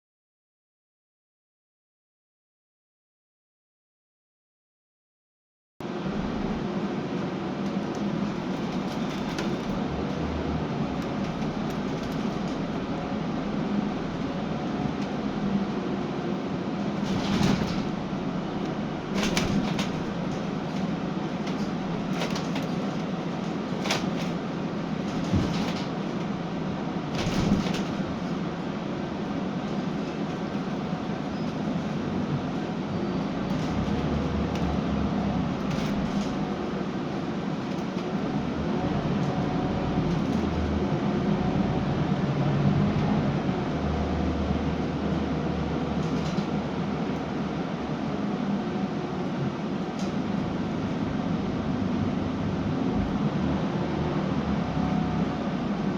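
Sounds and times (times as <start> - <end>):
bus engine and road drone: 5.8 - 55.9
body rattles and knocks: 19.1 - 26.1, 27.2 - 28.2.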